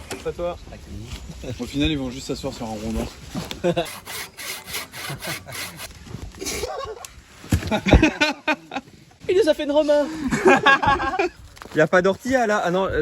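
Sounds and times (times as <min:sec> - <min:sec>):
hand saw cutting wood: 0:03.6 - 0:05.9.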